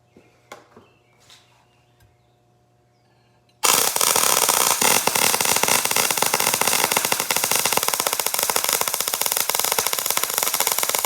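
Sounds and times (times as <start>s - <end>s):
welding arc crackling: 3.6s - 11.0s.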